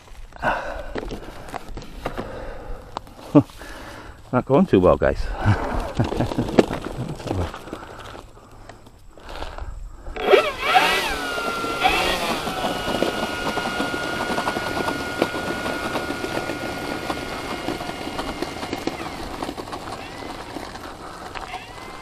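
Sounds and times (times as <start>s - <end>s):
electric motor and propeller whine: 10.1s - 22.0s.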